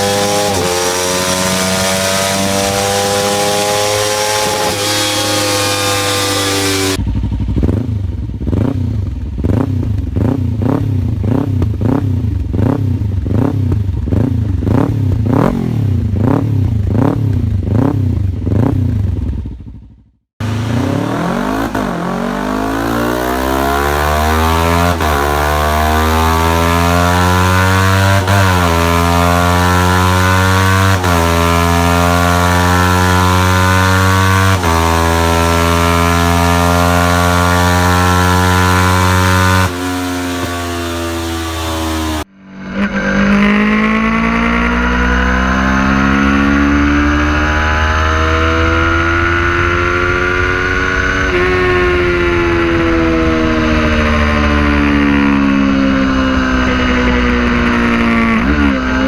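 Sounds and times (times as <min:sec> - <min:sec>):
motorcycle accelerating through gears: 0:00.0 - 0:59.0
motorcycle engine revving: 0:00.0 - 0:59.0.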